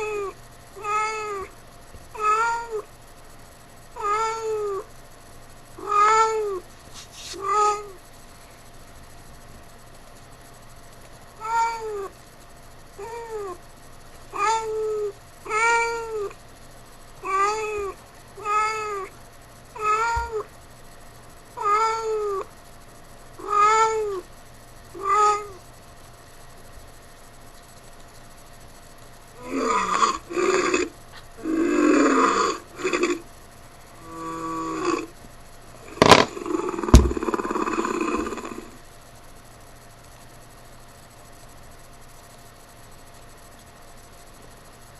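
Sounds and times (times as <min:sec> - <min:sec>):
cat meowing: 0:00.0 - 0:01.5, 0:02.2 - 0:02.8, 0:04.0 - 0:04.8, 0:05.8 - 0:06.6, 0:07.4 - 0:08.0, 0:11.4 - 0:12.1, 0:14.3 - 0:16.3, 0:17.2 - 0:19.1, 0:19.8 - 0:20.5, 0:21.6 - 0:22.5, 0:23.4 - 0:24.2, 0:25.0 - 0:25.6.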